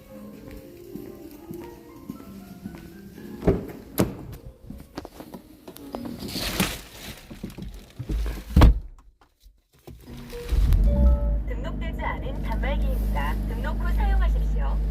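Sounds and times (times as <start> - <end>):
knocks and handling noise: 3.4 - 11.1.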